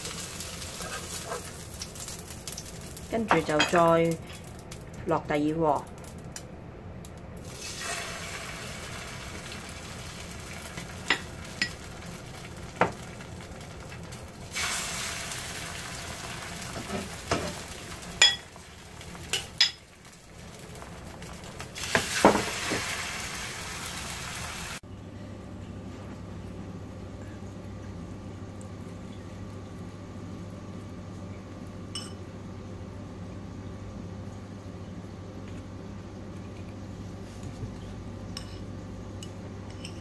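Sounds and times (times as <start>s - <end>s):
batter sizzling in hot oil: 0.0s - 4.9s, 7.4s - 24.8s.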